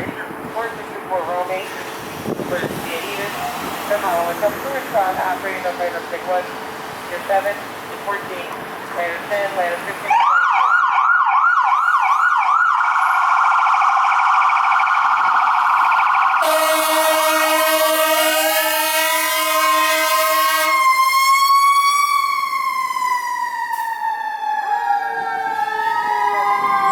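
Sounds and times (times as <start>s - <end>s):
electronic siren warbling: 10.2s - 16.9s
air horns blasting: 16.2s - 22.1s.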